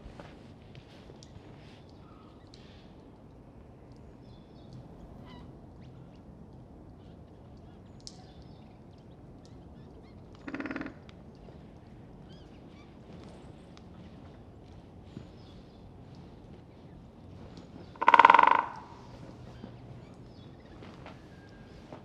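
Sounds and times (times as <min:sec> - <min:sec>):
small bird calls: 0:04.2 - 0:06.2
woodpecker drumming on wood: 0:17.8 - 0:19.2.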